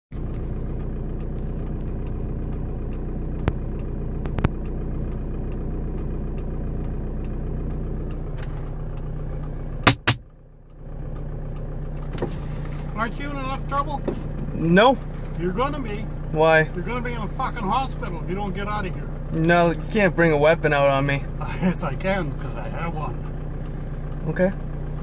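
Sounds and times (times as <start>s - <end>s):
car engine idling: 0.1s - 25.0s
faint regular ticking: 0.2s - 25.0s
sharp knocks: 9.8s - 10.2s.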